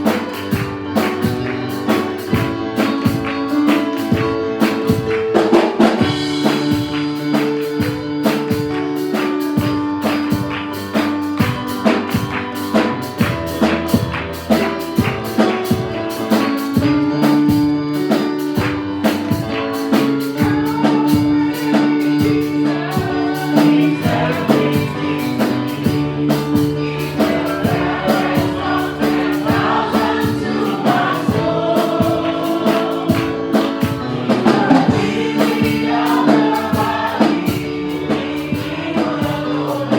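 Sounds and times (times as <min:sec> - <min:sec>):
drum kit beat: 0:00.0 - 0:39.9
keyboard chords: 0:00.0 - 0:39.9
voices singing together: 0:19.8 - 0:39.9.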